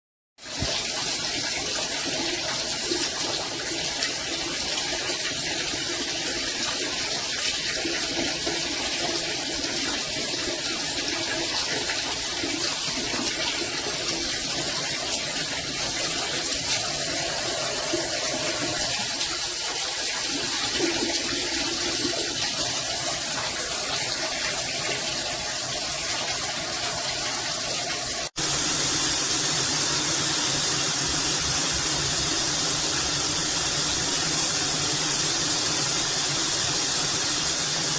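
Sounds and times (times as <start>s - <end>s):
water spraying from shower head: 9.7s - 29.6s.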